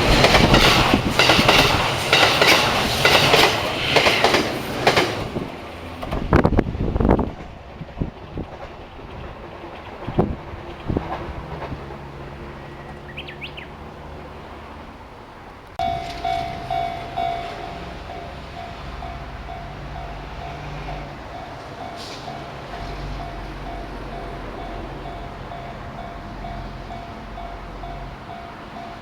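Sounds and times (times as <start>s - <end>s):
train wheels clacking over joints: 0.0s - 6.4s, 7.1s - 14.3s, 15.6s - 29.0s
train low rumble: 0.0s - 29.0s
bird chirp: 12.6s - 13.8s.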